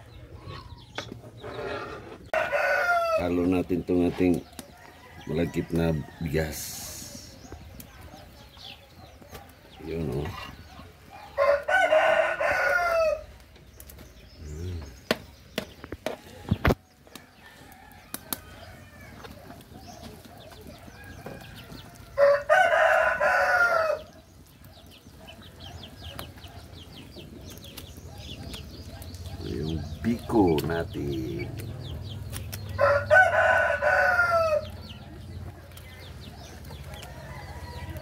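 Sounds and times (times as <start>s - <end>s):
rooster crowing: 2.3s - 3.3s, 11.2s - 13.3s, 17.2s - 19.4s, 20.7s - 24.1s, 32.7s - 35.1s, 36.9s - 38.0s.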